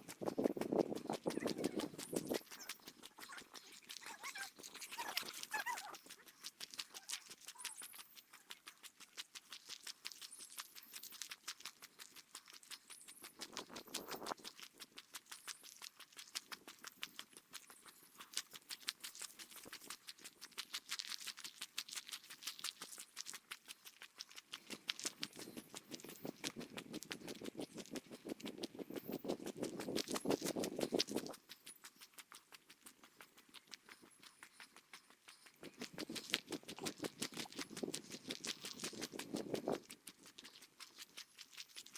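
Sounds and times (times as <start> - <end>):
fast footsteps on a trail: 0.0 - 6.1, 24.6 - 31.4, 33.0 - 40.4.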